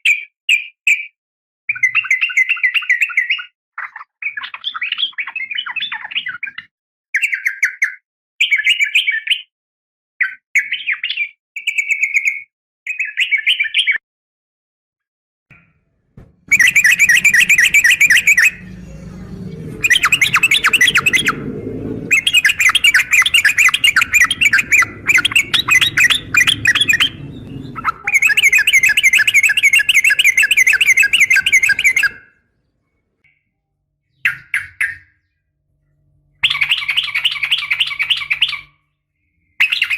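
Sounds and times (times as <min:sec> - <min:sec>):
bulbul chirping: 0:16.5 - 0:18.9, 0:22.1 - 0:32.2
bird trilled chatter: 0:16.5 - 0:32.2.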